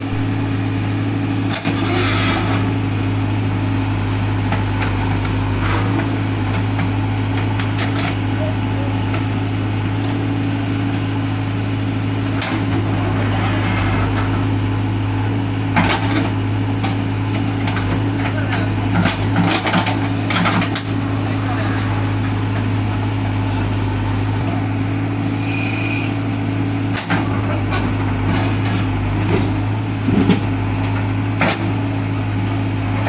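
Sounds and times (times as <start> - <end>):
diesel engine running: 0.0 - 33.0
short knocks and clanks: 26.9 - 31.8.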